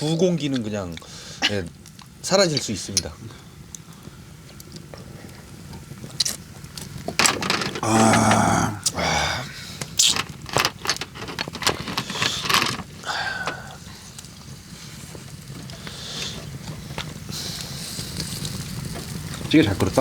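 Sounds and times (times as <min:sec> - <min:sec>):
utensils clicking against bowls: 0:10.0 - 0:13.7.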